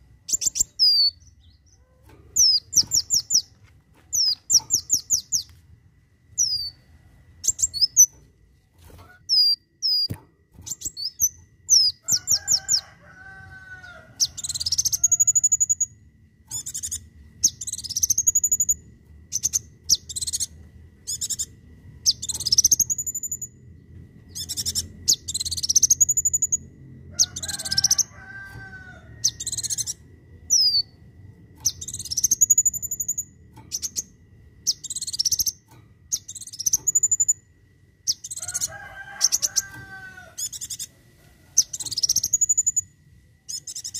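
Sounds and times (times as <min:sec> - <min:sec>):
sunbird singing: 0:00.0 - 0:05.6, 0:06.4 - 0:06.8, 0:07.4 - 0:08.2, 0:09.2 - 0:31.0, 0:31.6 - 0:43.9.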